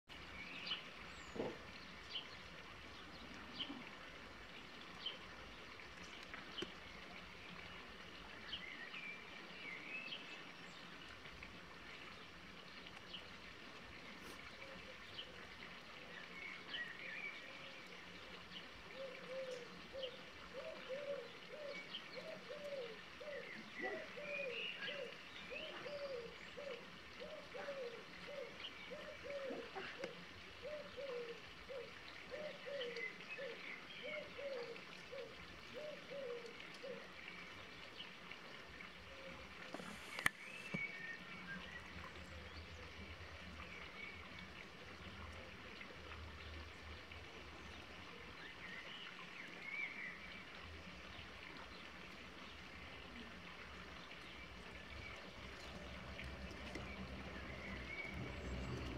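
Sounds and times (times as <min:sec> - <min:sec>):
small birds chirping: 0:39.7 - 0:43.1, 0:53.7 - 0:58.9
faint low hum: 0:54.3 - 0:58.9.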